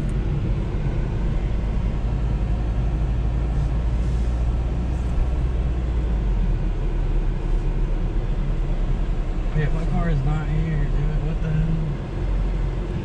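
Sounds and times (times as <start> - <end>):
car engine rumble: 0.0 - 13.0
road noise inside car: 0.0 - 13.0.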